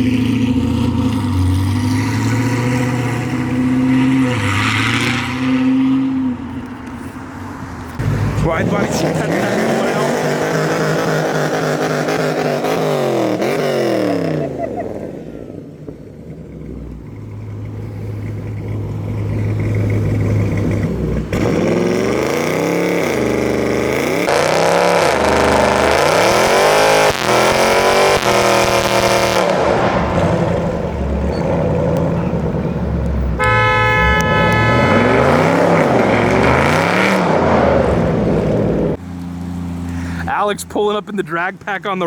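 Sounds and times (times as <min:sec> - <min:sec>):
car engine revving: 0:00.0 - 0:40.8
car horn honking: 0:33.3 - 0:37.1.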